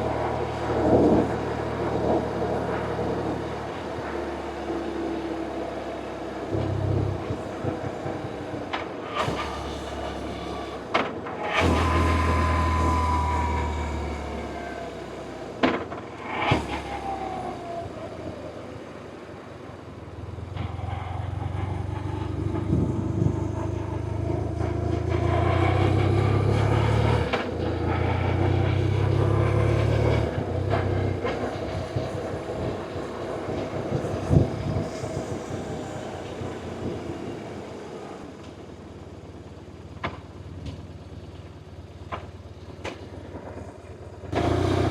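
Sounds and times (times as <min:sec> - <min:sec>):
falling whine: 0:00.0 - 0:44.9
motorcycle engine running: 0:20.2 - 0:37.3.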